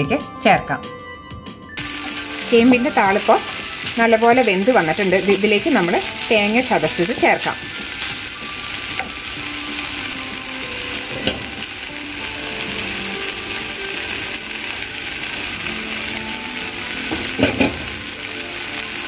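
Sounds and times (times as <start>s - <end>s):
vegetables sizzling in oil: 1.8s - 19.0s
utensils knocking against a pan: 11.1s - 11.7s, 17.1s - 17.9s.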